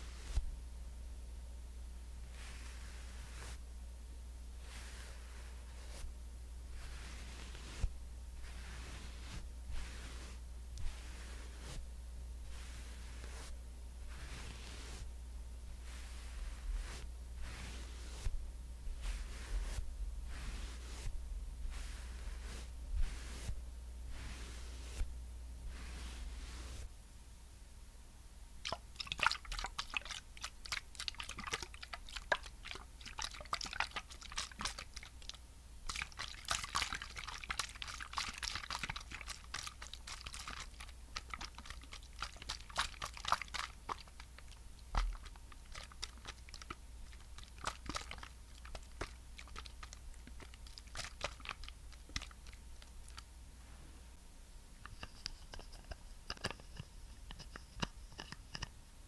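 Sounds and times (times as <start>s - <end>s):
sticky wet crackles and clicks: 28.6s - 53.2s.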